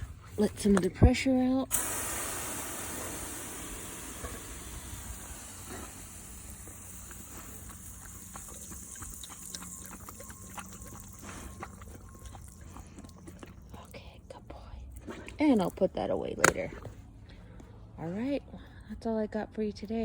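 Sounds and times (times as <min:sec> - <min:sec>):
hose nozzle hissing: 0:01.7 - 0:09.5
small clicks and splashes: 0:06.9 - 0:13.9.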